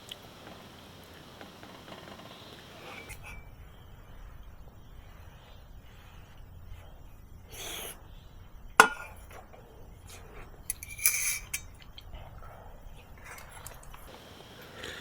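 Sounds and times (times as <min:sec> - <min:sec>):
tableware clattering: 0:08.8 - 0:09.4, 0:10.7 - 0:11.8
tableware clinking: 0:08.8 - 0:09.4, 0:10.7 - 0:11.8.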